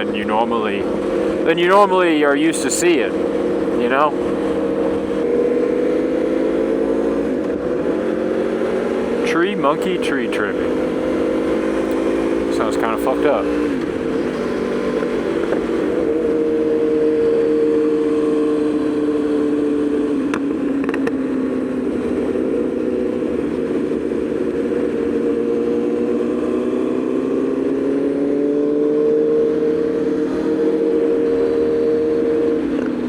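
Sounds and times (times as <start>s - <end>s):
motorcycle engine cruising: 0.0s - 33.0s.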